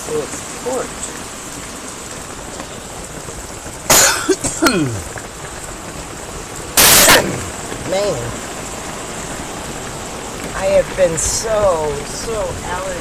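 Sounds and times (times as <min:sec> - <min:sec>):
rain drumming on a metal roof: 0:00.0 - 0:13.0
person coughing: 0:03.9 - 0:05.0, 0:06.9 - 0:07.5.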